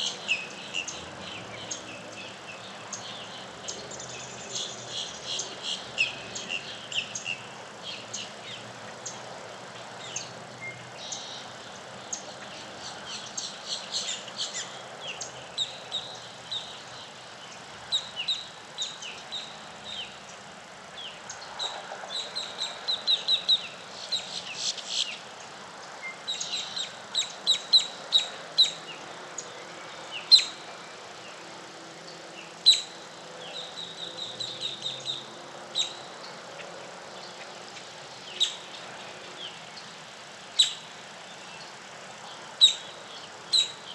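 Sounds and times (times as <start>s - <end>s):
birds chirping: 0.0s - 43.9s
steady background hiss: 0.0s - 43.9s
sharp bird calls: 10.0s - 25.4s, 26.0s - 30.6s, 32.4s - 39.9s, 40.5s - 41.7s, 42.3s - 43.9s.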